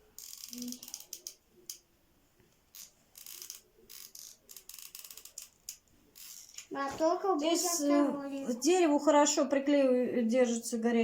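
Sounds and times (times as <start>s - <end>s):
clicks and rattles of hand-work: 2.6s - 6.7s.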